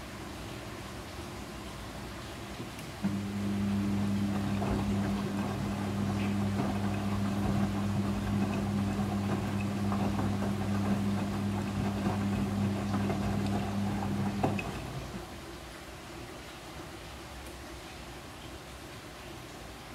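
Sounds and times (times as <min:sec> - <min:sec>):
washing machine humming: 0:02.6 - 0:15.8
washing machine click: 0:03.0 - 0:15.2.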